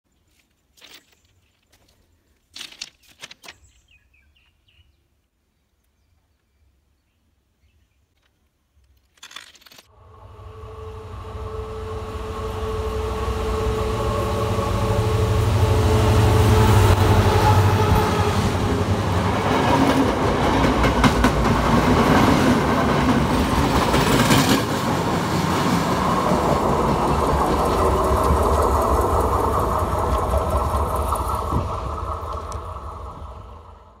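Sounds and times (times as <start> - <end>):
passing train drone and rumble: 9.9 - 34.0
train wheels clattering: 17.3 - 33.1.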